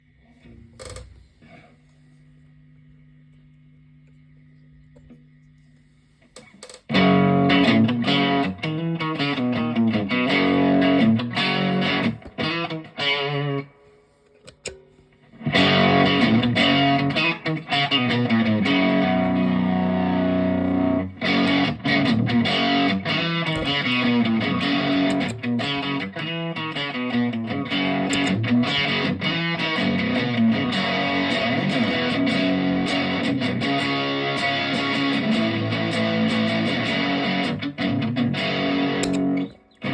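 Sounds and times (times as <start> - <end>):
overdriven electric guitar riffing: 6.9 - 13.8, 15.3 - 39.9.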